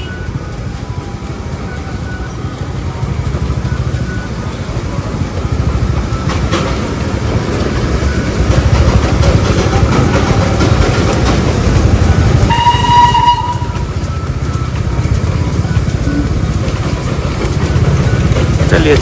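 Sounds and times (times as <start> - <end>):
motorcycle engine: 0.0 - 19.0
train rumbling and clattering: 0.0 - 19.0
wind rumble: 0.0 - 19.0
train horn blast: 12.0 - 14.2.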